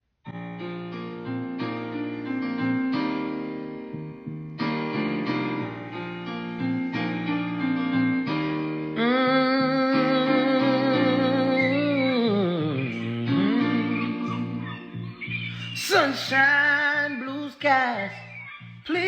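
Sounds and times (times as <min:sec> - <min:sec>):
piano chords: 0:00.3 - 0:19.0.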